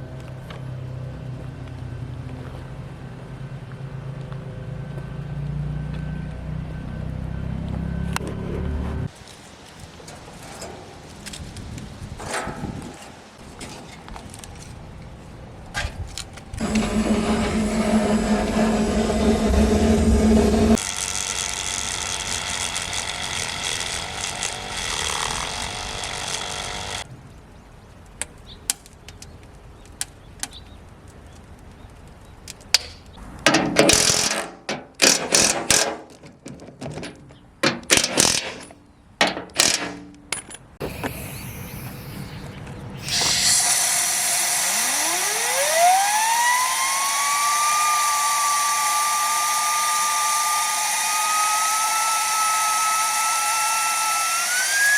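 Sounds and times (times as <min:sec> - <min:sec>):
high-speed motor whine: 0:16.6 - 0:27.0, 0:40.8 - 0:54.9
workshop tool noise: 0:16.6 - 0:27.0, 0:33.5 - 0:54.9.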